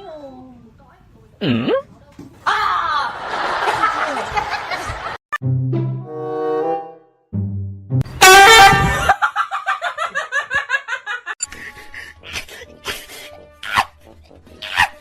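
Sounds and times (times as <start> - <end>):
comic laughter: 8.4 - 14.0, 14.6 - 15.0.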